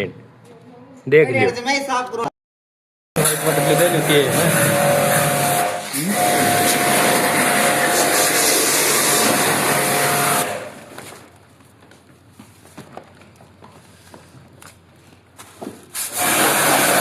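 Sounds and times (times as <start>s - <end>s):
machine rushing and whining: 3.2s - 11.0s, 16.1s - 17.0s.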